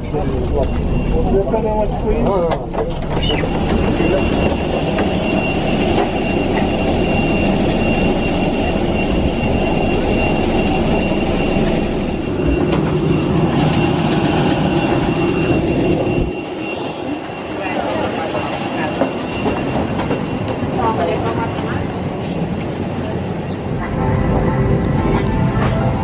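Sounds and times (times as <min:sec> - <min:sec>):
vehicle rumbling in motion: 0:00.0 - 0:17.2.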